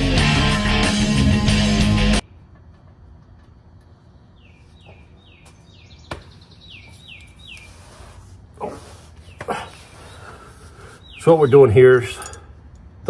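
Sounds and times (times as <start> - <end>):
small bird chirping: 4.2 - 8.1, 10.0 - 12.2
hand tools clinking: 12.0 - 12.6.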